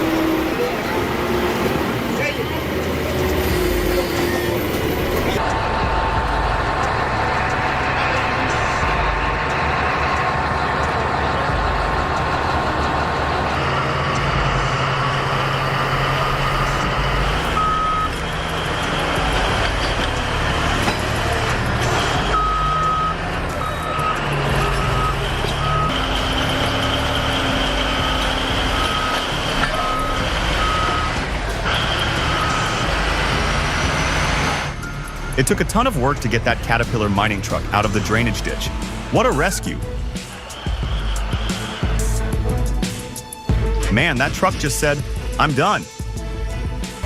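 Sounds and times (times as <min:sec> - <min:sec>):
heavy equipment engines running: 0:00.0 - 0:47.0
reversing alarm beeps: 0:17.6 - 0:18.2, 0:22.4 - 0:26.0, 0:28.8 - 0:31.1.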